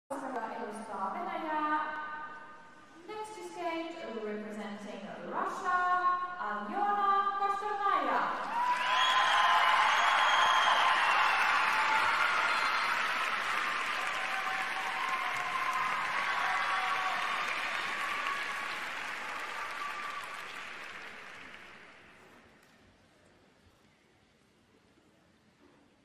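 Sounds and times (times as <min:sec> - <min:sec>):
crowd applauding: 0:08.4 - 0:22.4.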